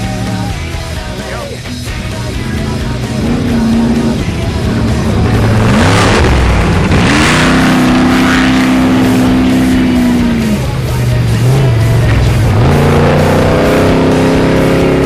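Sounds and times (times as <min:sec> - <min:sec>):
music: 0:00.0 - 0:15.0
truck engine revving hard: 0:01.8 - 0:15.0.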